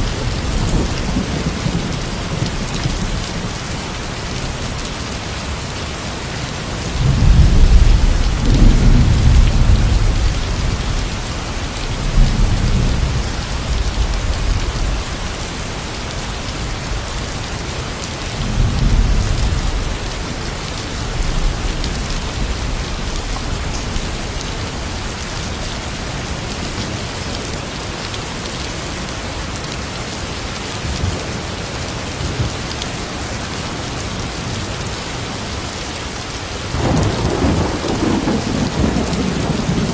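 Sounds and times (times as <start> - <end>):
steady rain falling: 0.0 - 39.9
thunder rolling: 36.7 - 39.9.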